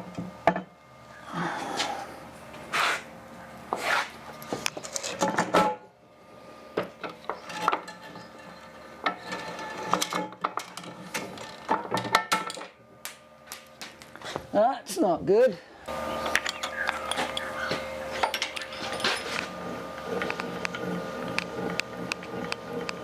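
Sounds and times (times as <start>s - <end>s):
metal scraping and rubbing: 7.1s - 12.1s, 16.0s - 23.0s
metal parts clinking and knocking: 18.2s - 19.5s.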